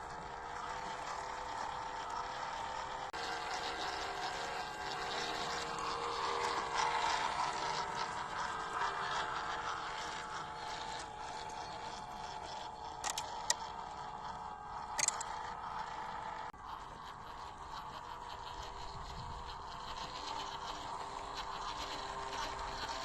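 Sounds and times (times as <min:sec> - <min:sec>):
electric motor and gears whining: 0:00.0 - 0:23.0
sharp clicks or knocks: 0:13.0 - 0:13.6, 0:15.0 - 0:15.2.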